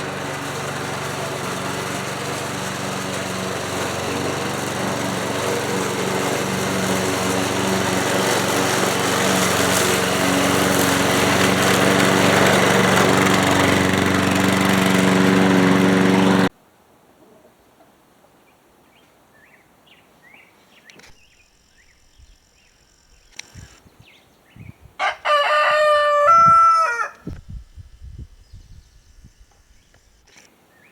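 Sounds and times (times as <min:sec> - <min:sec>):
lawn mower engine running: 0:00.0 - 0:16.5.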